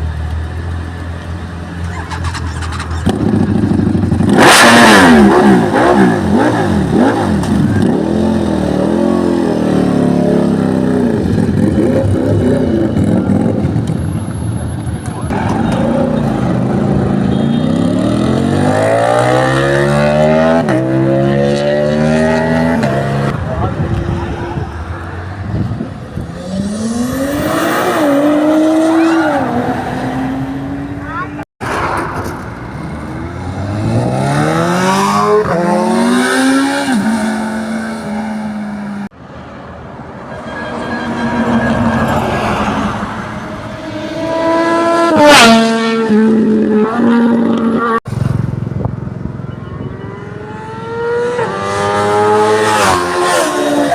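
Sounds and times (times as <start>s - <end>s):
engine accelerating hard: 2.2s - 14.4s, 32.6s - 39.1s, 41.3s - 53.9s
engine approaching: 40.8s - 53.9s.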